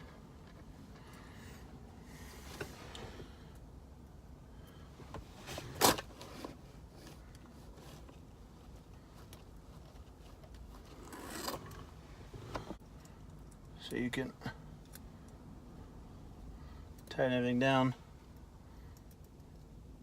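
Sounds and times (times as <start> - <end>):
light clicks of small parts: 12.8 - 14.0, 18.3 - 19.8.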